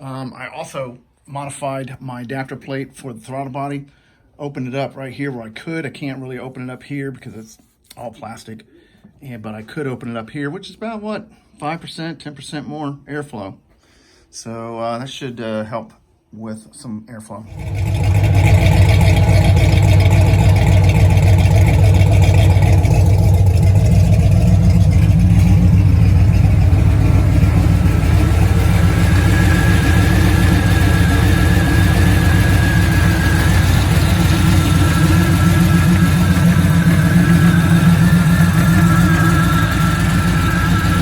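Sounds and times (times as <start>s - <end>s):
engine idling: 17.5s - 41.0s
faint high whine: 17.5s - 41.0s.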